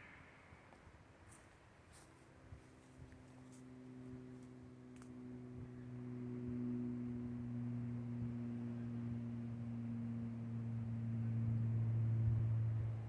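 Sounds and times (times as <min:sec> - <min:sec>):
low drone of held tones: 0:03.9 - 0:13.0.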